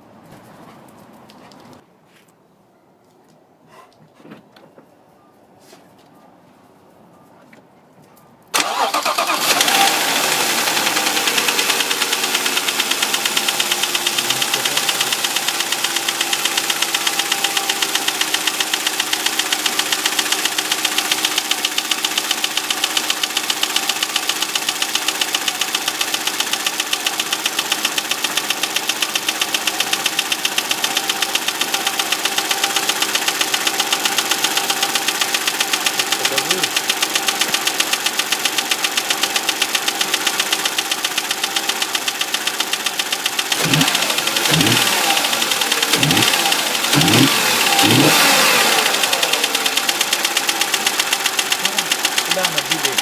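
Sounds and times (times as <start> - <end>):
car engine starting and idling: 8.5 - 53.0
fast regular engine knock: 10.8 - 53.0.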